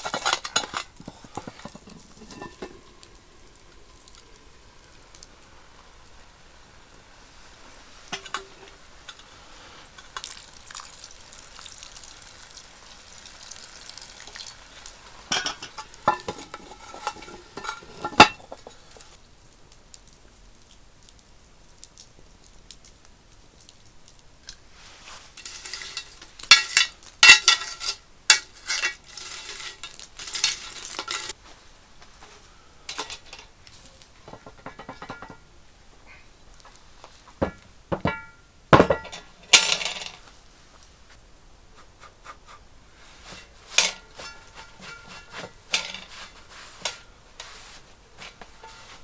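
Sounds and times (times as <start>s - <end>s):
metal cookware clanking: 0.0s - 3.2s, 8.1s - 9.3s, 15.2s - 19.2s, 25.4s - 31.4s, 32.9s - 35.5s, 37.4s - 40.2s, 43.2s - 47.1s, 48.2s - 49.0s.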